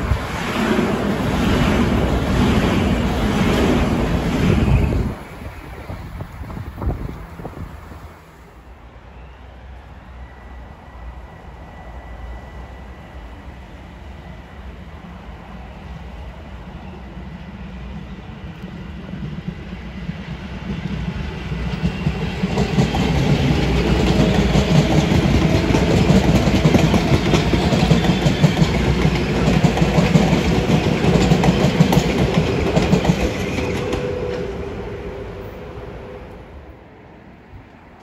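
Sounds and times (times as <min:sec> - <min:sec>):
train cars rumbling: 0:00.0 - 0:37.0
train wheels clacking: 0:18.6 - 0:35.1.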